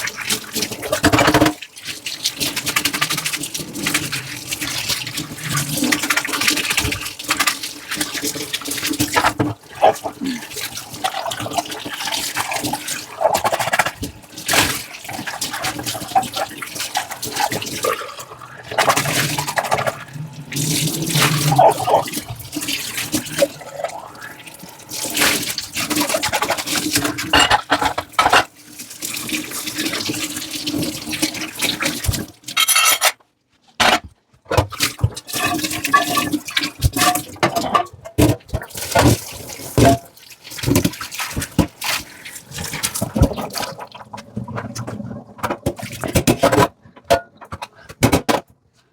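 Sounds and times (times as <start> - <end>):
tap water running: 0.0 - 33.0, 34.6 - 47.7
dishes clinking and knocking: 27.3 - 28.5, 32.6 - 33.2, 35.3 - 36.4.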